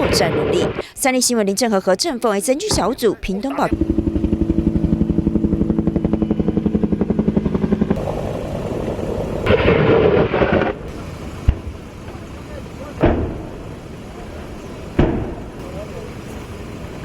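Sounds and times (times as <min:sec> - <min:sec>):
helicopter rotor pulse: 0:00.0 - 0:17.0
noisy rush: 0:02.6 - 0:17.0
sharp crack: 0:09.4 - 0:12.2, 0:12.8 - 0:13.6, 0:15.0 - 0:15.9.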